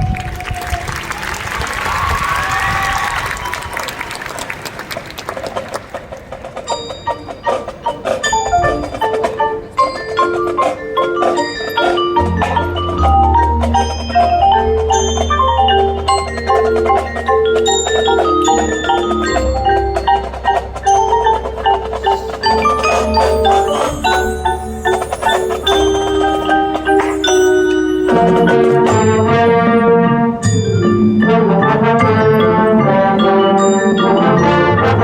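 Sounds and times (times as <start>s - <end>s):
mallet percussion quick run: 6.5s - 29.6s.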